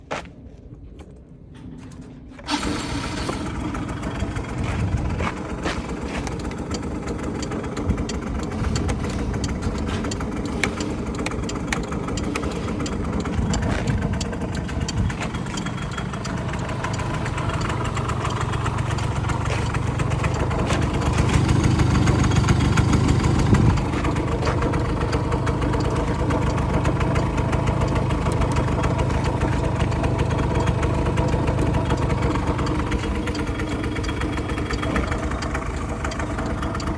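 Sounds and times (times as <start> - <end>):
scooter engine idling: 2.4 - 36.9.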